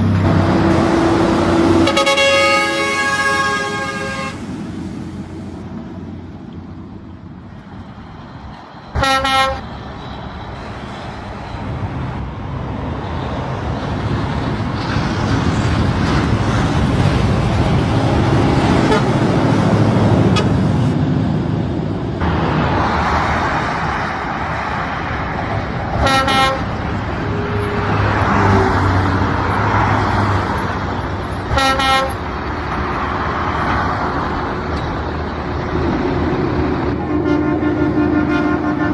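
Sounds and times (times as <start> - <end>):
heavy vehicle engine and road noise: 0.0 - 38.9
vehicle horn toot: 0.3 - 4.4, 9.0 - 9.6, 18.8 - 19.1, 26.0 - 26.7, 31.5 - 32.2, 37.0 - 38.9.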